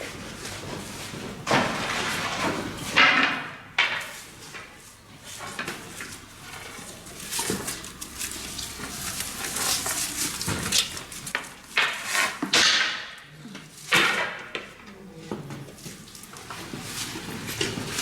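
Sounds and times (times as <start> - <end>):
scraping noises: 4.0 - 12.5.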